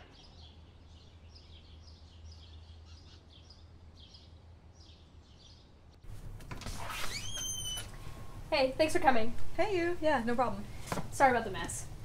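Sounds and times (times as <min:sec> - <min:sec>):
small bird chirping: 0:00.0 - 0:05.9
low outdoor rumble: 0:07.8 - 0:12.0.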